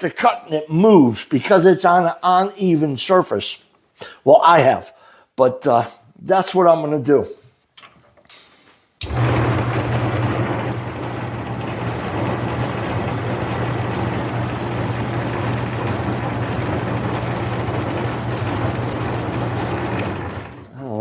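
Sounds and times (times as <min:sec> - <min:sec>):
metal lathe running: 0:09.0 - 0:20.8.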